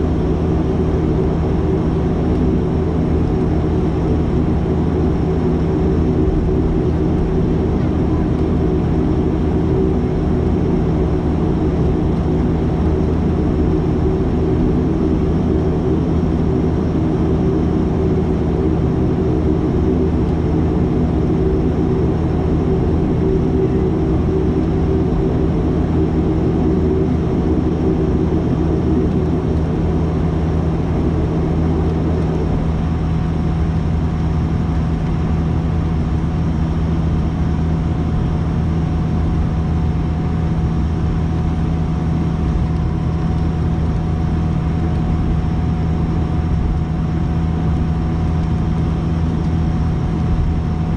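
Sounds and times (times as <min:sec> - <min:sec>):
turboprop engines droning: 0:00.0 - 0:50.9.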